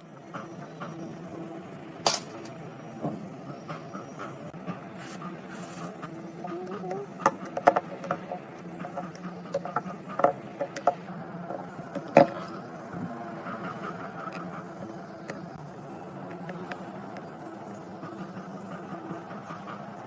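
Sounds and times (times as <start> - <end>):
steady low hum: 0.0 - 20.0
tools clicking and knocking: 7.2 - 12.5.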